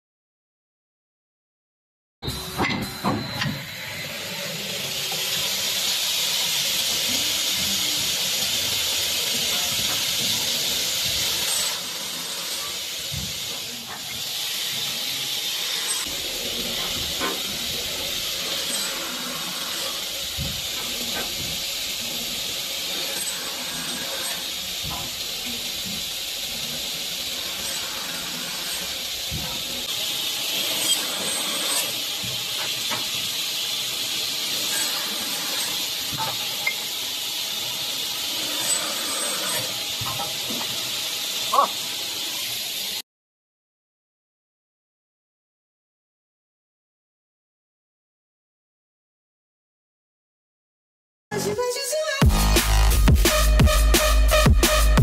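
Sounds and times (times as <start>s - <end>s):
woodworking machine hissing: 2.3s - 43.0s.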